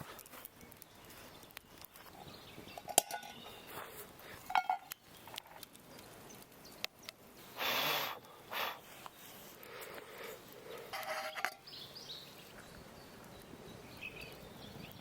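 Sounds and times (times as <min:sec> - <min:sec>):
cookware clinking and knocking: 0:02.8 - 0:03.4.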